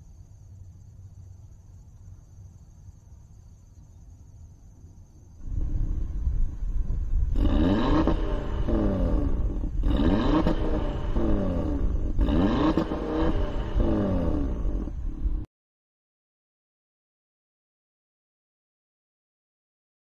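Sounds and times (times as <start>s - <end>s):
low engine rumble: 0.0s - 15.5s
car engine revving: 5.4s - 15.5s.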